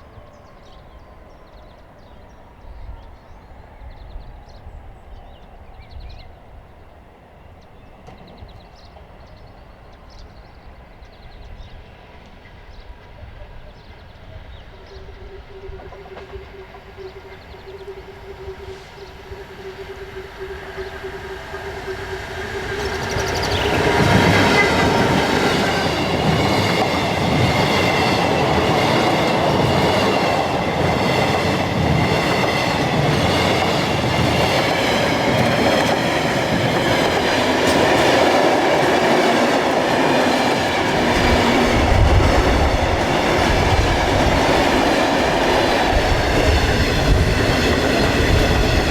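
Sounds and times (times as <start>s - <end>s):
train passing: 0.0s - 48.9s
steady tone: 16.6s - 26.2s.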